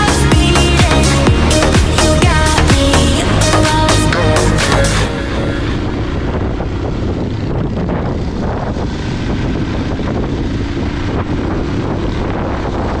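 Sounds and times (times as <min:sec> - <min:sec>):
motorcycle engine running: 0:00.0 - 0:13.0
wind buffeting microphone: 0:05.1 - 0:13.0.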